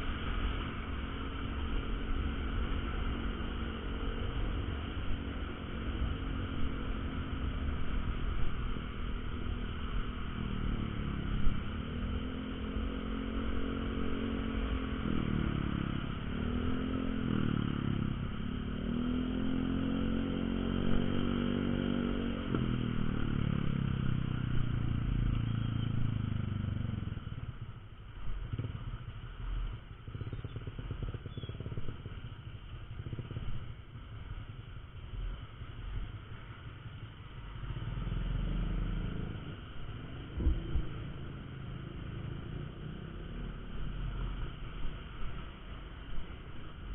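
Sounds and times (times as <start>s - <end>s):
motorcycle engine accelerating: 0.0s - 46.9s
road and wind noise: 0.0s - 46.9s.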